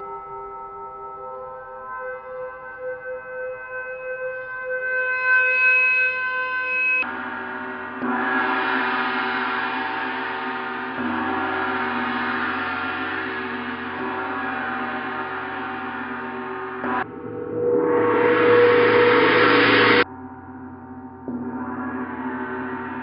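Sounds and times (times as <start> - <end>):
gongs ringing: 14.8 - 20.1.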